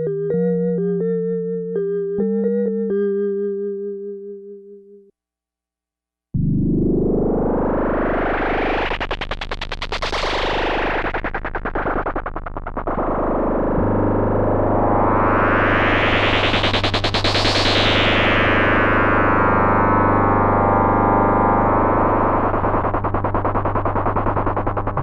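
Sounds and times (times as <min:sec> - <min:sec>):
analog synthesizer chord: 0:06.4 - 0:08.9, 0:12.9 - 0:25.0.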